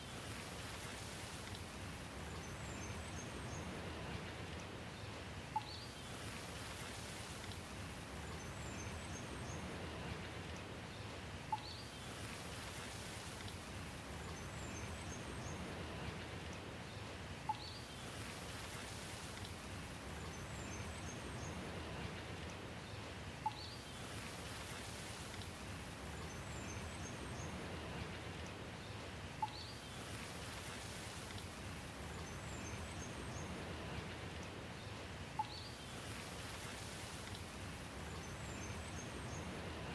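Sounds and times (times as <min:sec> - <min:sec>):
steady rain falling: 0:00.0 - 0:39.9
faint high bird chirps: 0:35.4 - 0:35.8.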